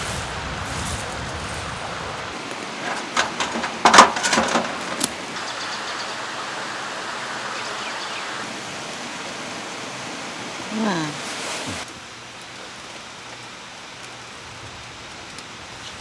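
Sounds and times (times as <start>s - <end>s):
low rumble: 0.0s - 2.4s
mountain stream rushing: 0.0s - 12.2s
sharp knocks and clatter: 2.8s - 5.1s.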